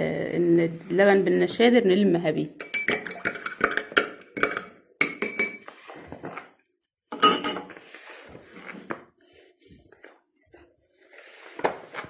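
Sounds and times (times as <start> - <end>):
bowl and utensils clinking: 2.6 - 5.7, 7.1 - 7.8.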